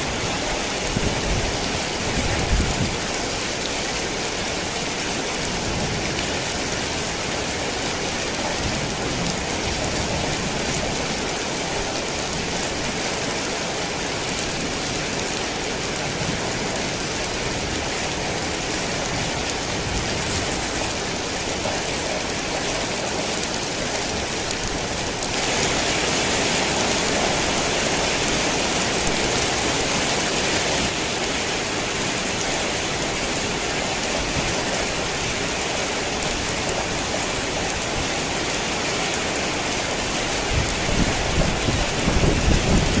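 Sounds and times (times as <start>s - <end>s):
heavy rain falling: 0.0s - 43.0s.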